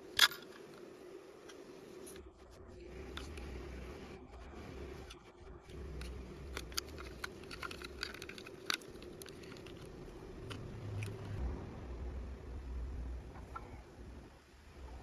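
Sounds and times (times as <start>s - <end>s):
small parts and tools clicking: 0.0s - 2.2s, 5.0s - 11.4s
low steady hum: 0.0s - 15.0s.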